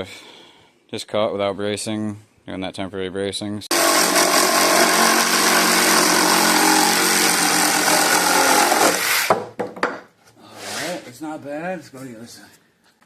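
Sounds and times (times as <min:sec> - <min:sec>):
power saw cutting wood: 0:03.7 - 0:09.3.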